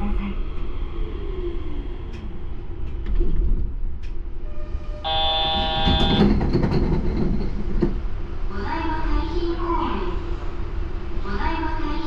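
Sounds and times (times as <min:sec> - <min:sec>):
train rumble: 0:00.0 - 0:12.0
electronic buzzer tone: 0:05.1 - 0:06.2.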